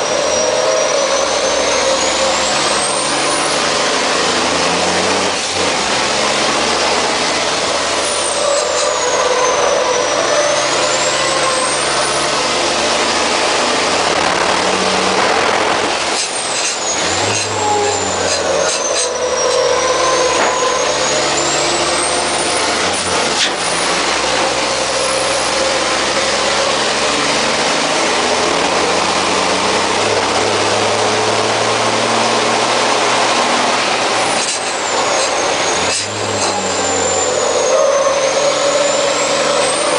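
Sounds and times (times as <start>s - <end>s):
truck engine running under load: 0.0s - 39.9s
high turbo whistle: 8.0s - 13.0s, 16.6s - 22.9s, 34.8s - 39.9s.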